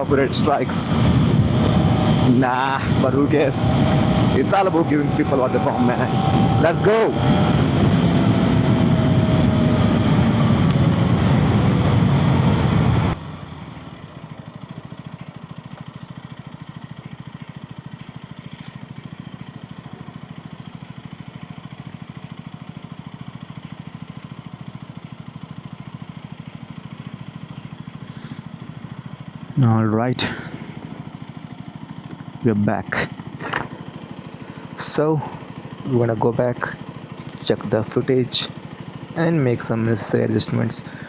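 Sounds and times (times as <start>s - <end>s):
wind noise: 0.0s - 13.2s
motorcycle engine from helmet: 0.0s - 41.0s.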